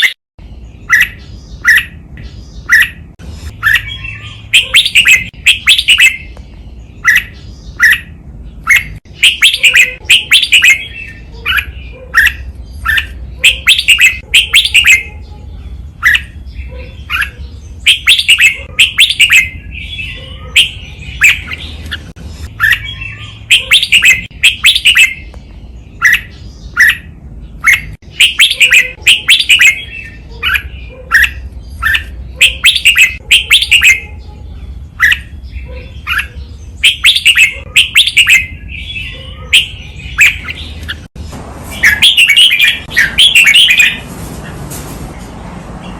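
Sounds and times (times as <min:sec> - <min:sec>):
bird singing whistled notes: 0:03.6 - 0:15.2, 0:16.0 - 0:21.8, 0:22.5 - 0:25.3, 0:25.9 - 0:34.1, 0:35.0 - 0:40.8.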